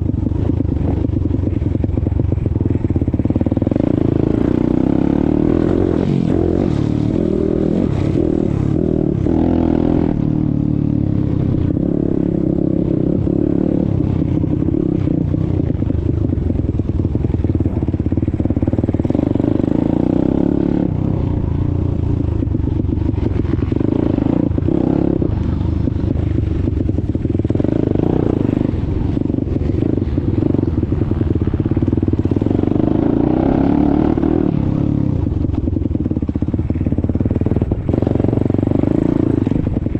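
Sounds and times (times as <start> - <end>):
motorbike engine revving: 3.1 - 21.4, 22.1 - 39.9.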